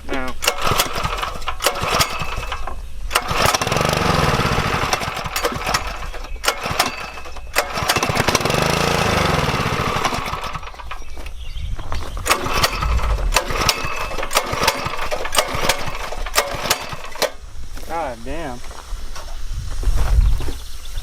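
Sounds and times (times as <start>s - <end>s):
recoil cord pull: 0.4s - 11.0s
small gas engine running: 0.4s - 11.2s, 12.2s - 17.4s.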